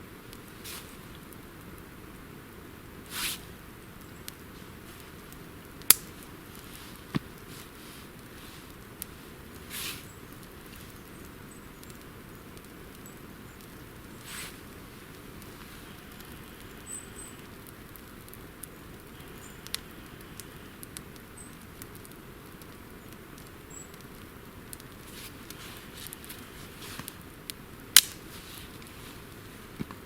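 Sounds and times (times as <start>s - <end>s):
campfire twigs crackling: 0.0s - 30.0s
loud sharp wood snap: 5.8s - 7.5s, 27.0s - 28.4s.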